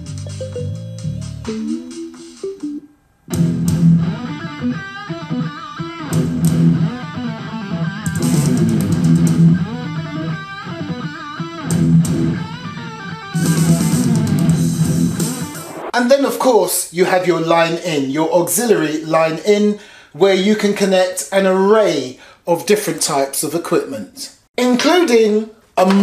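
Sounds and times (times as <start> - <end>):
rock music from portable speaker: 0.0 - 16.0.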